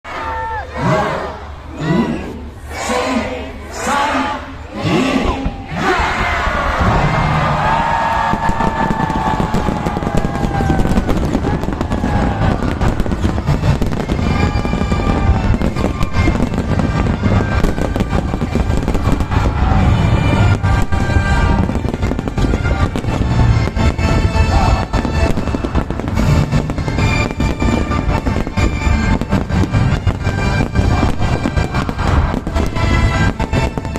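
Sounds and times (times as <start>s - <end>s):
music playing: 6.6s - 33.9s
fireworks bangs and crackles: 6.7s - 33.9s.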